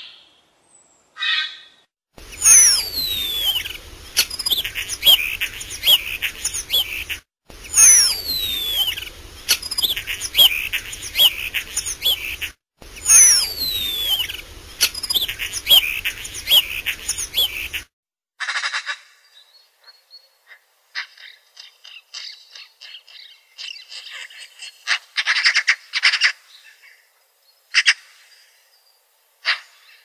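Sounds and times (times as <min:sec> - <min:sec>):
background hiss: 0:02.2 - 0:17.8
short sharp bird chirps: 0:02.2 - 0:17.9
bird singing trills: 0:02.4 - 0:17.8.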